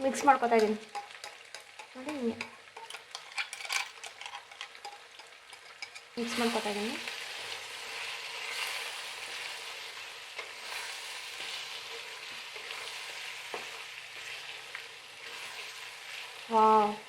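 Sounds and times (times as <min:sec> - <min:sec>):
chicken sizzling in a pan: 0:00.0 - 0:17.0
stirring scrapes: 0:00.1 - 0:06.8.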